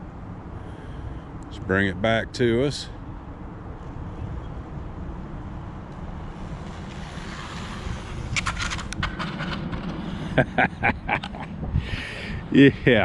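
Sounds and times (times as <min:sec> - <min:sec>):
wind rumbling on microphone: 0:03.0 - 0:13.0.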